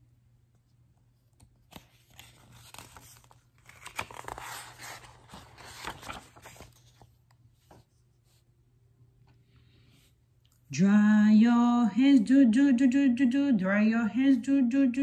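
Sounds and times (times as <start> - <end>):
book pages being flipped: 1.1 - 8.4.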